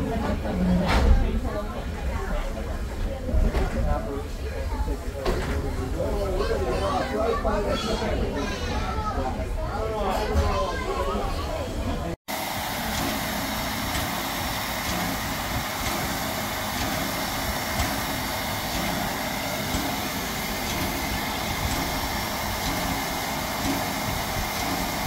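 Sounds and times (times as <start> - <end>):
train coach rolling on rails: 11.6 - 25.0.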